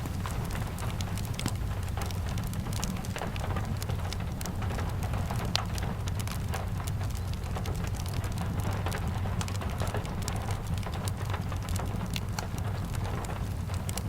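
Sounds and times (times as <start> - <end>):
fire ticks and crackles: 0.0 - 14.0
steady rain: 0.0 - 14.0.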